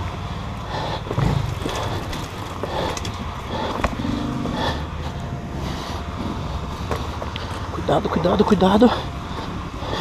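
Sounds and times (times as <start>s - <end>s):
knocks and clicks over rough ground: 0.0s - 5.3s, 6.7s - 10.0s
motorcycle engine at low revs: 0.0s - 10.0s.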